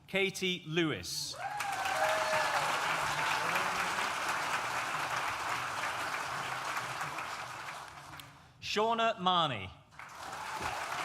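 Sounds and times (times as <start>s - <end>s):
audience applauding: 1.4s - 8.3s, 10.0s - 11.0s.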